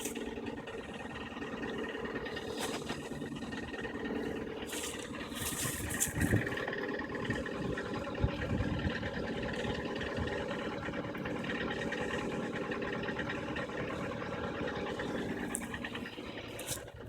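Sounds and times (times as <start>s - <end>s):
engine knocking: 0.0s - 17.0s
petrol engine running: 0.0s - 17.0s.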